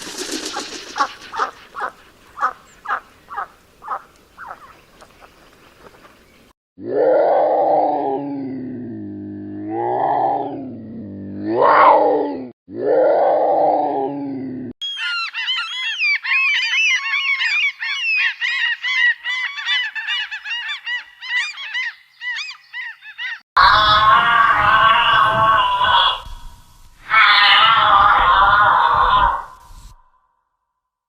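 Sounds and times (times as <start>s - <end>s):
birds honking: 0.0s - 5.4s
deep animal calls: 0.1s - 4.8s, 23.2s - 30.1s.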